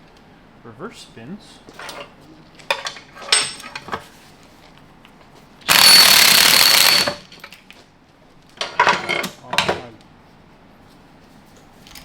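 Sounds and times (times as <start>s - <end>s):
pneumatic impact wrench: 5.7s - 7.3s.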